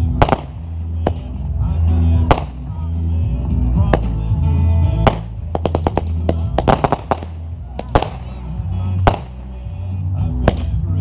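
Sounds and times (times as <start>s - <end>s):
fireworks bangs: 0.0s - 1.4s, 5.0s - 8.4s
loud bass-heavy music: 0.0s - 11.0s.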